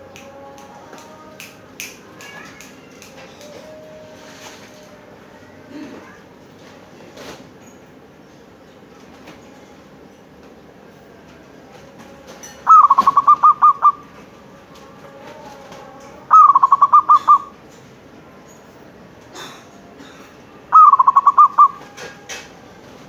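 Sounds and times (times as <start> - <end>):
dove cooing: 12.6 - 14.3, 15.2 - 17.6, 19.4 - 23.0.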